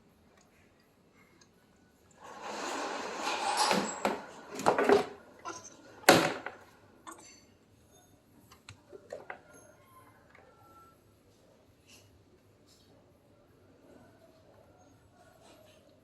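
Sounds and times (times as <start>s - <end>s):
sharp knocks and clatters: 2.2s - 7.4s.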